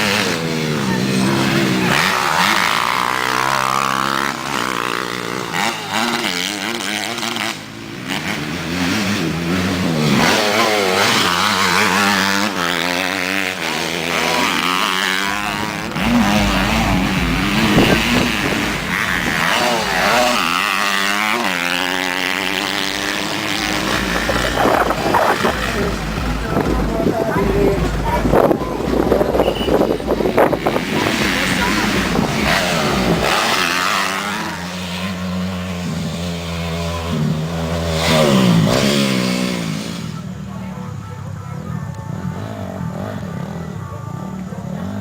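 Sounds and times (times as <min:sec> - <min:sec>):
motorcycle engines revving: 0:00.0 - 0:45.0
low rumble: 0:15.8 - 0:20.1.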